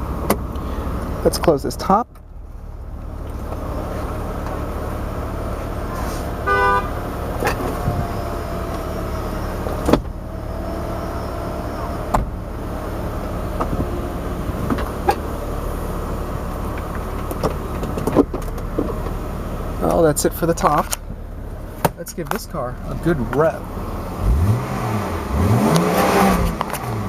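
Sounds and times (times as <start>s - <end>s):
convertible roof motor hum: 0.0s - 25.0s
roof clicks and knocks: 14.6s - 15.3s, 16.5s - 19.2s, 21.8s - 22.6s.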